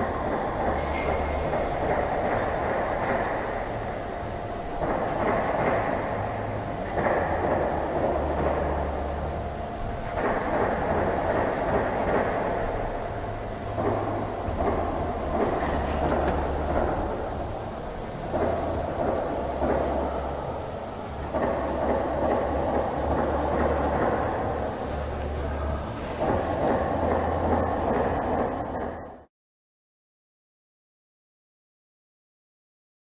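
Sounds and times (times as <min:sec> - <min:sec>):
low drive hum: 0:03.0 - 0:29.0.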